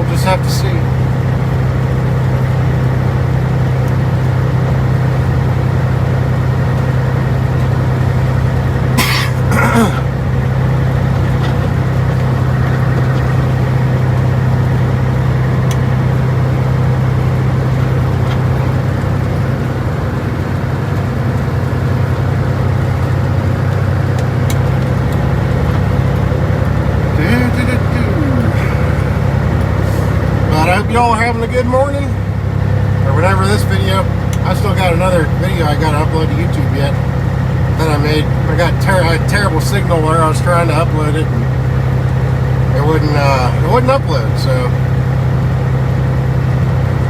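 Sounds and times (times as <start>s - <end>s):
truck diesel engine droning: 0.0s - 47.0s
engine cough: 8.8s - 14.5s, 26.8s - 32.3s.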